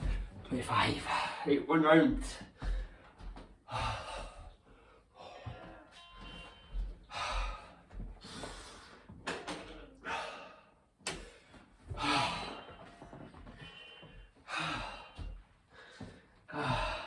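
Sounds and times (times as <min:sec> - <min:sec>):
man breathing hard: 0:02.4 - 0:05.7, 0:07.0 - 0:09.2, 0:09.9 - 0:17.0.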